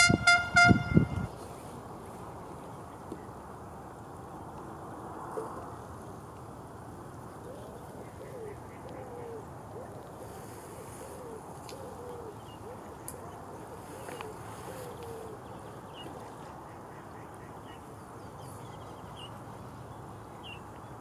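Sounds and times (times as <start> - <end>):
outdoor background hiss: 0.0 - 21.0
bird hooting coos: 7.4 - 15.5.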